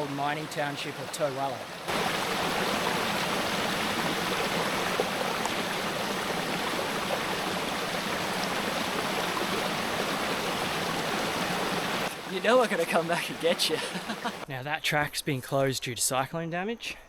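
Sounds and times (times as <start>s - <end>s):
creek water rushing: 0.0s - 14.5s.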